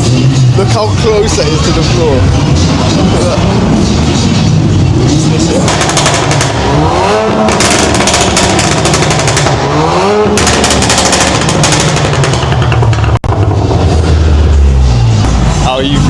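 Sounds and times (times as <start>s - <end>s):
car engine revving: 0.0s - 16.0s
exhaust pops and bangs: 5.3s - 14.2s.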